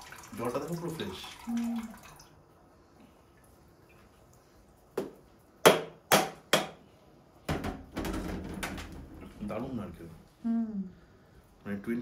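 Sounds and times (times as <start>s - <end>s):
chopping blows on coconut shell: 5.6s - 6.8s.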